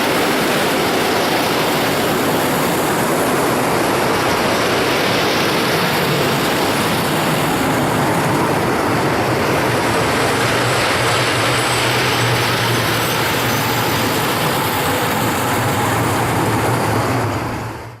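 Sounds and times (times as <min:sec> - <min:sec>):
freight train rumbling past: 0:00.0 - 0:18.0.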